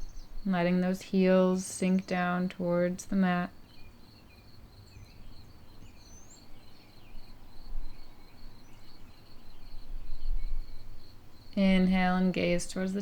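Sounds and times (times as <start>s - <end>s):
crickets chirping: 3.5s - 13.0s
faint bird chirps: 3.5s - 13.0s.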